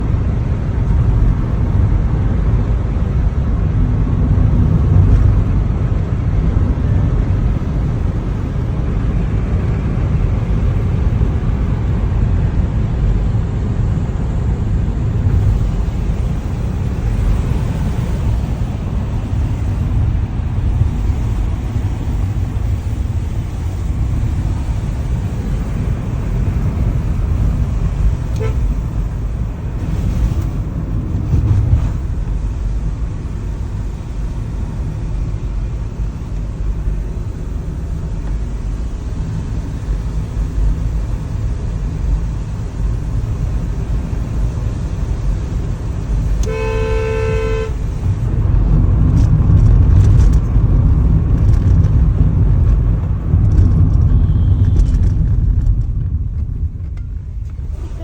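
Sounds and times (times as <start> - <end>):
vehicle road rumble: 0.0 - 58.0
vehicle horn honk: 28.3 - 29.0, 46.4 - 48.1, 54.0 - 55.0.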